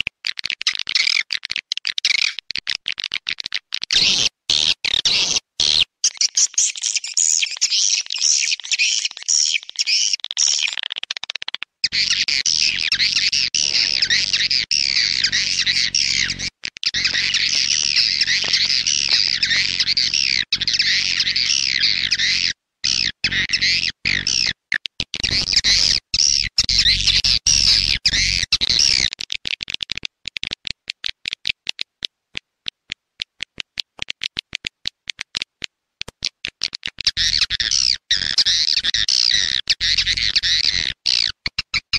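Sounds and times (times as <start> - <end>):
fast short clicks: 10.2 - 20.9, 24.1 - 27.2, 28.1 - 37.4.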